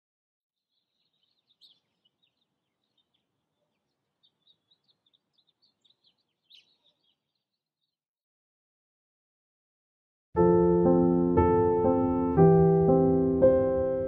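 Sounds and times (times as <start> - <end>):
faint birds chirping: 0.6 - 8.1.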